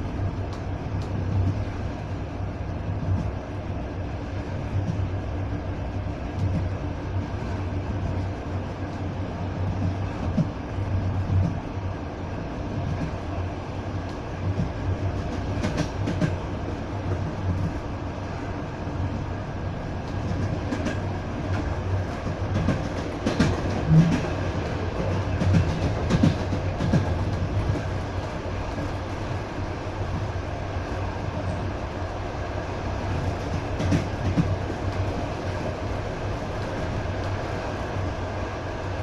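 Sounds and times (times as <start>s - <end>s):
train wheels rumbling on rails: 0.0s - 39.0s
clicking of rail joints: 20.0s - 29.3s, 33.2s - 35.6s.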